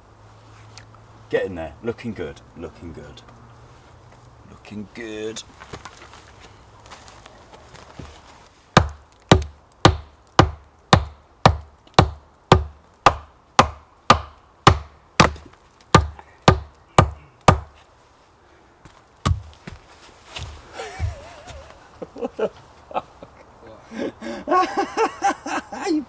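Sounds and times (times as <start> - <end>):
tool striking wood: 8.8 - 17.8, 19.2 - 19.5.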